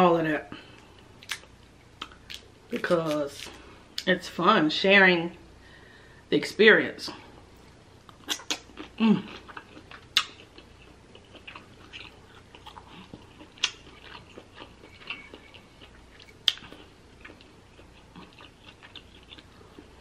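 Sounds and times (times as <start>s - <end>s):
close-up chewing: 8.0s - 20.0s
wet mouth clicks and lip smacks: 8.2s - 8.6s, 10.2s - 10.4s.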